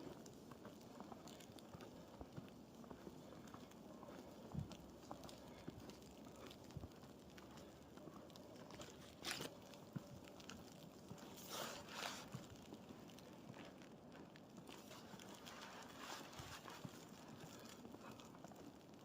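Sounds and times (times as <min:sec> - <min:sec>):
boots crunching in snow: 0:11.2 - 0:12.6, 0:14.7 - 0:18.2.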